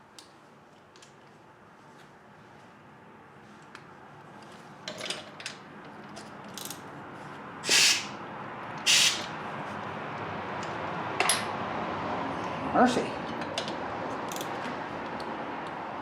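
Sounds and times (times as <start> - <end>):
short hissing bursts: 7.6 - 8.2, 8.9 - 9.3.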